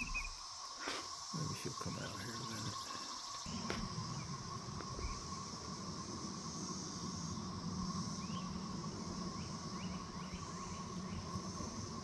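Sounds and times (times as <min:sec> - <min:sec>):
rising bird chirps: 0:00.0 - 0:05.4
insects droning: 0:00.0 - 0:12.0.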